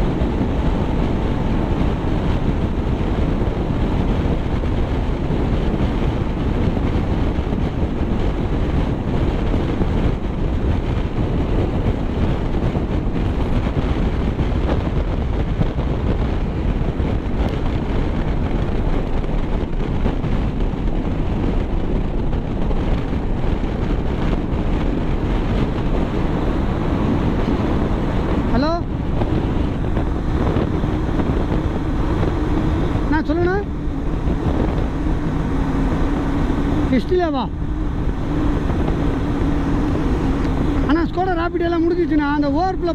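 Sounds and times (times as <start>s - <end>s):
vehicle rumble at speed: 0.0s - 42.9s
wind buffeting microphone: 0.0s - 42.9s.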